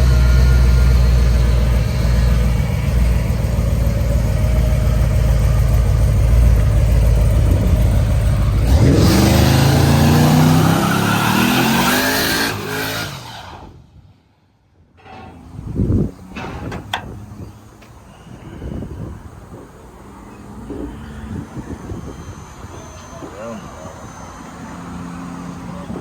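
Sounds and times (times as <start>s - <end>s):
car engine accelerating: 0.0s - 13.7s.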